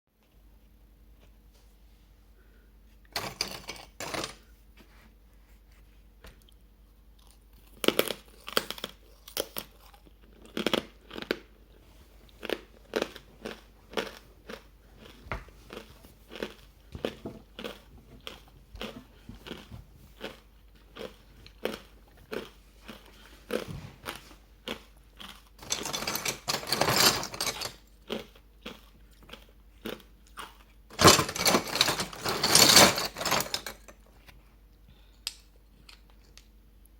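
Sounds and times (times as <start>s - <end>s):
crunching and chewing ice: 7.1s - 26.6s, 27.4s - 31.0s.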